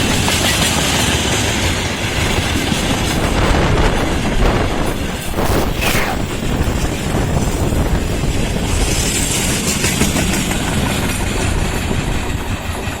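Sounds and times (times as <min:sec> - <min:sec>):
freight train wheels clattering: 0:00.0 - 0:05.3, 0:06.8 - 0:13.0.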